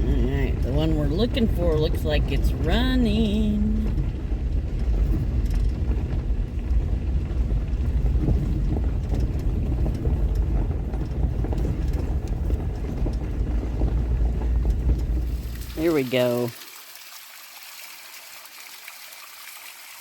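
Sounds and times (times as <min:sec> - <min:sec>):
small rattles and knocks: 0:00.0 - 0:15.9
engine and road rumble: 0:00.0 - 0:16.4.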